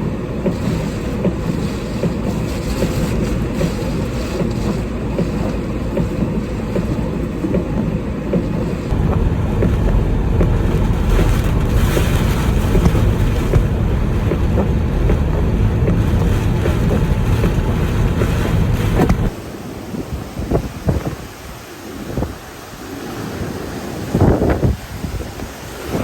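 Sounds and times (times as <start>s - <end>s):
gale wind buffeting microphone: 8.3s - 26.0s.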